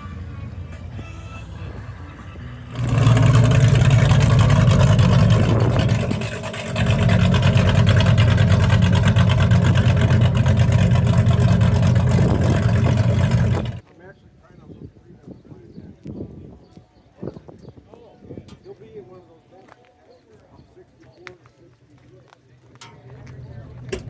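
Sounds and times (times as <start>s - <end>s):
car engine and exhaust pulsing: 0.0s - 13.8s, 22.9s - 24.0s.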